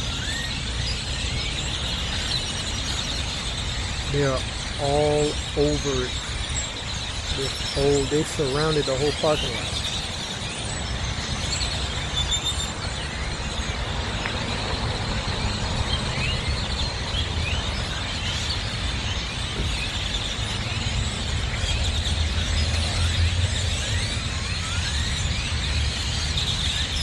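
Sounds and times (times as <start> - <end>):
flock of birds chirping: 0.0 - 27.0.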